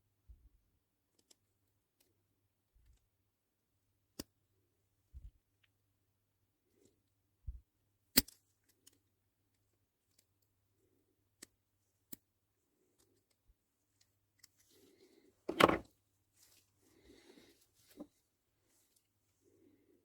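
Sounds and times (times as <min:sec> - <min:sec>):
clicks of small parts: 0:01.1 - 0:01.4, 0:08.2 - 0:10.4, 0:11.4 - 0:12.2.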